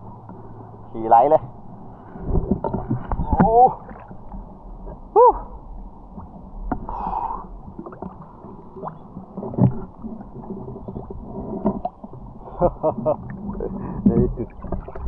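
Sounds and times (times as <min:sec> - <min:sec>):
underwater gurgling water: 0:01.5 - 0:15.0.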